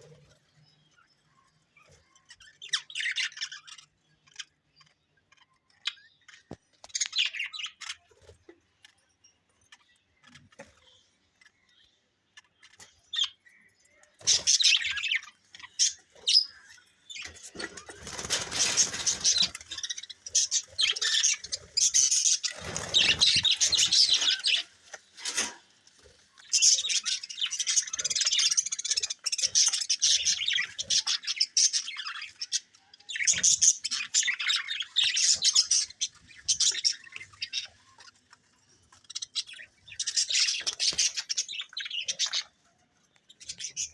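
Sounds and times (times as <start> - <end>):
parrots chirping: 14.2 - 25.4, 26.3 - 42.5.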